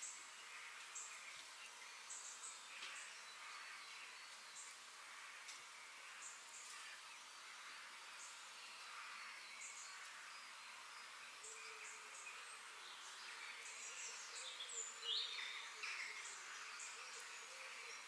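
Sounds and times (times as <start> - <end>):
forest birds chirping: 8.2 - 18.0.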